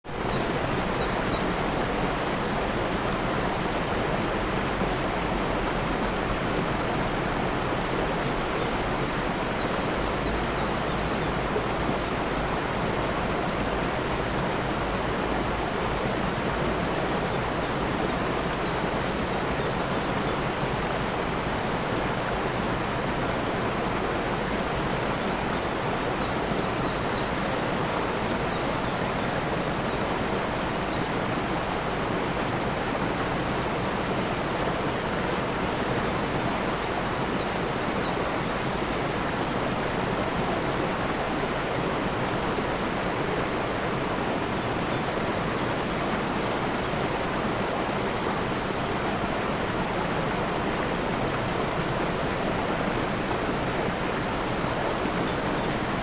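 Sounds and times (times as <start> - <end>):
waterfall rushing: 0.1 - 56.0
bird chirping: 0.3 - 1.8, 8.6 - 12.4, 45.0 - 49.3.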